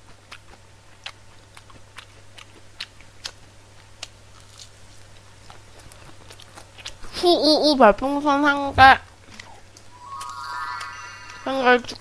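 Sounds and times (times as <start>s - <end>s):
person chewing crunchy food: 0.1s - 7.0s.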